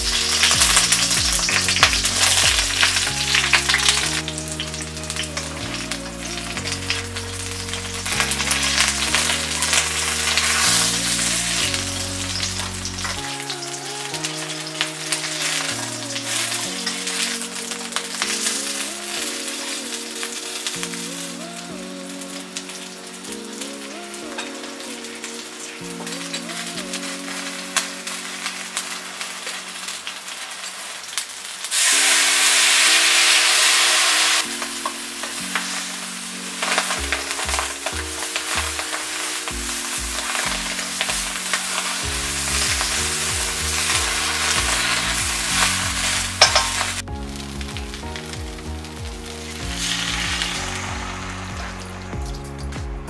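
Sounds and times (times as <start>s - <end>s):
chicken sizzling in a wok: 0.0s - 21.3s, 26.7s - 52.8s.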